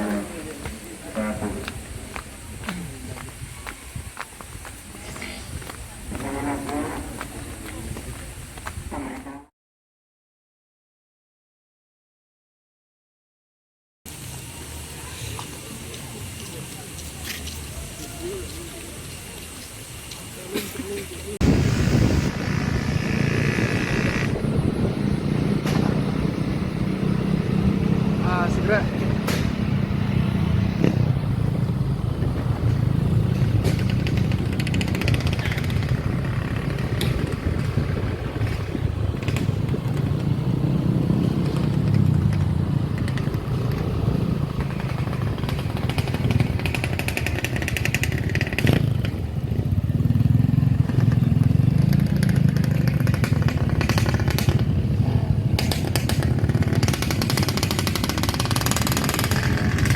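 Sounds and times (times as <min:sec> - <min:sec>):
motorcycle engine running: 0:21.4 - 0:59.9.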